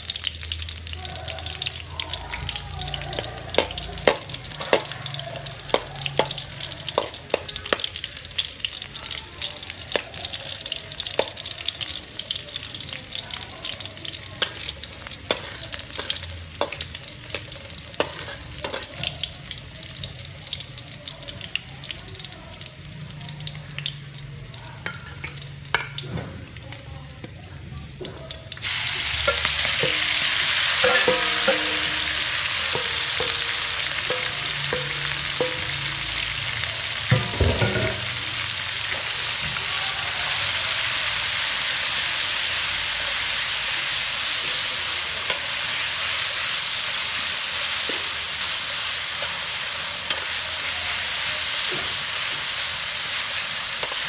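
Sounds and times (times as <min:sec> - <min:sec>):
garlic frying in oil: 0:00.0 - 0:54.0
loud sizzle of food in oil: 0:00.0 - 0:54.0
metal spatula knocking and scraping wok: 0:03.1 - 0:05.0, 0:05.6 - 0:08.0, 0:15.3 - 0:19.2, 0:29.1 - 0:36.0, 0:37.0 - 0:38.2.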